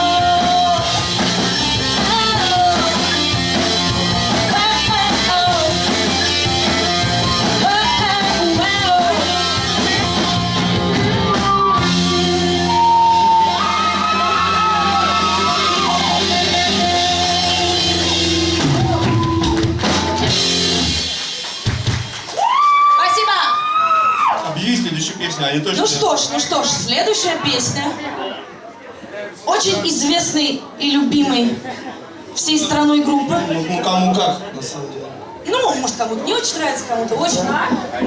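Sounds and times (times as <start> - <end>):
person singing: 0.0 - 6.3, 7.2 - 19.3
live pop-punk band: 0.0 - 22.5.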